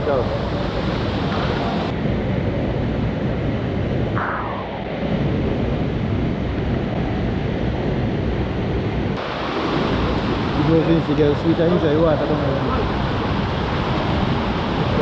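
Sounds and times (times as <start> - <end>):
rushing water: 0.0 - 2.0, 9.2 - 15.0
wind buffeting microphone: 0.0 - 15.0.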